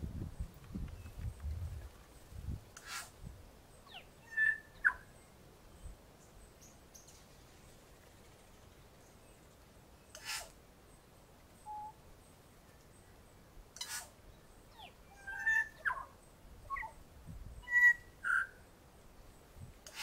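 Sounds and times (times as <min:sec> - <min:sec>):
short hissing bursts: 0:02.8 - 0:03.2, 0:10.2 - 0:10.6
birds chirping and whistling: 0:03.9 - 0:05.0, 0:14.7 - 0:16.1, 0:17.6 - 0:18.6
bird trill: 0:03.9 - 0:05.2, 0:11.6 - 0:12.0, 0:14.7 - 0:17.0, 0:17.6 - 0:18.6.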